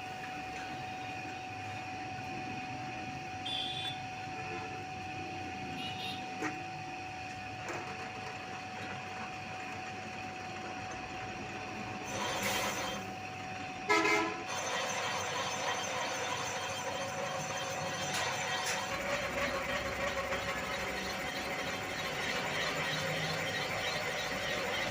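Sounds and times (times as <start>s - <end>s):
workshop machinery whining: 0.0s - 24.9s
horn-like toot: 3.4s - 4.0s, 13.9s - 14.4s.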